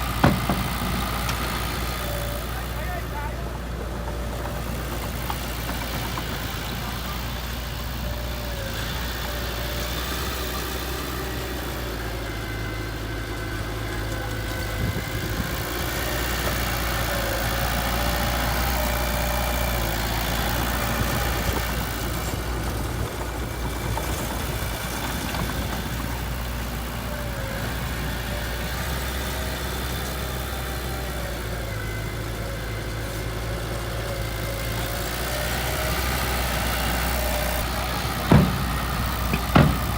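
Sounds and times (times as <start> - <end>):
heavy diesel engine idling: 0.0 - 39.9.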